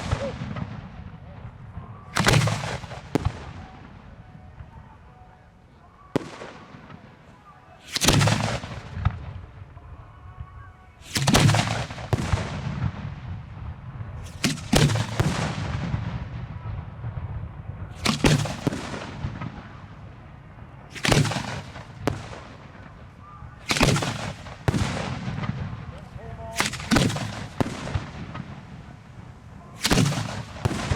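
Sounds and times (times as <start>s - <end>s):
fireworks bangs: 0.0s - 4.8s, 6.1s - 9.5s, 11.0s - 30.9s
small fireworks pops: 7.8s - 9.3s, 20.9s - 30.9s.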